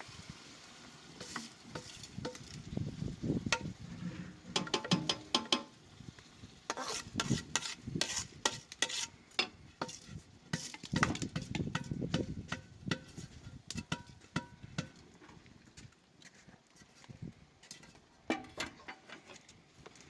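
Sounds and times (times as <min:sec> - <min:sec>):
metal spoon scraping in pot: 0:01.2 - 0:02.6, 0:03.4 - 0:05.7, 0:06.7 - 0:14.5.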